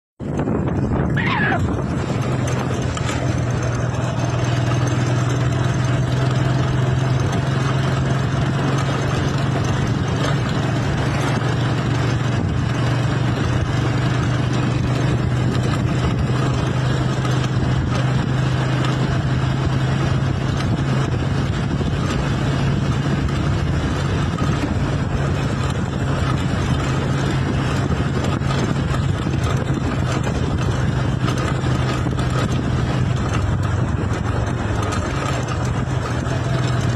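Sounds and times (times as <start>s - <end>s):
road noise: 0.2s - 36.9s
vehicle engine droning: 0.2s - 36.9s.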